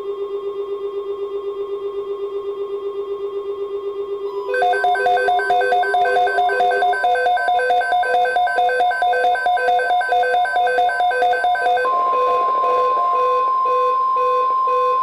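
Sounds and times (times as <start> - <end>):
steady high alarm tone: 4.4 - 15.0
rapid electronic beeping: 4.5 - 13.9.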